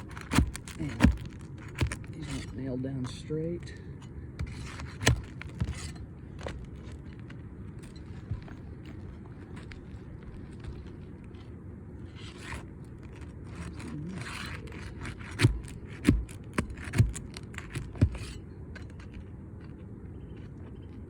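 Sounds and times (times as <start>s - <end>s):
tool scraping under roof shingle: 0.0s - 19.2s.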